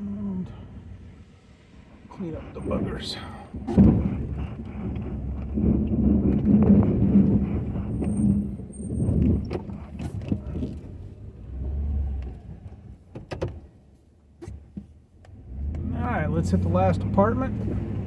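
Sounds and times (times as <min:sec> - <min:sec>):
truck engine rumbling: 0:00.0 - 0:14.4, 0:15.0 - 0:18.0.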